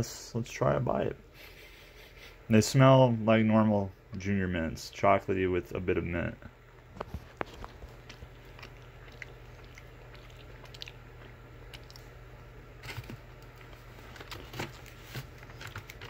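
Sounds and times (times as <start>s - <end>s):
person chewing crunchy candy: 7.2s - 12.4s.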